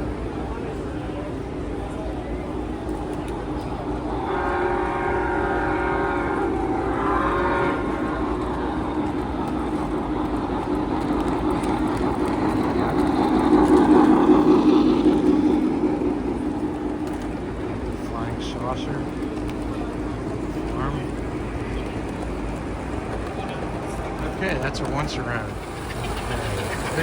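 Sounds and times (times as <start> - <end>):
hum and hubbub of a busy hall: 0.0 - 14.4, 15.0 - 27.0
model train horn blowing: 4.0 - 9.2.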